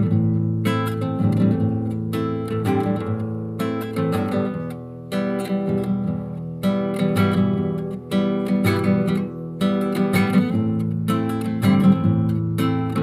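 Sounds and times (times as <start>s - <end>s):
strummed acoustic guitar chords: 0.0s - 13.0s.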